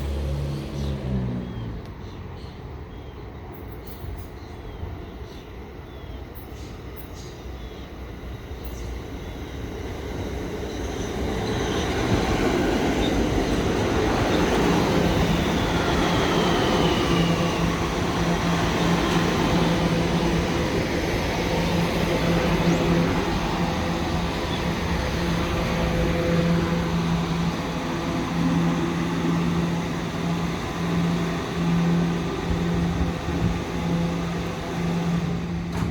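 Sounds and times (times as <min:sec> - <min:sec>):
electric train rumbling on tracks: 0:00.0 - 0:35.9
train motor hum: 0:08.4 - 0:35.9.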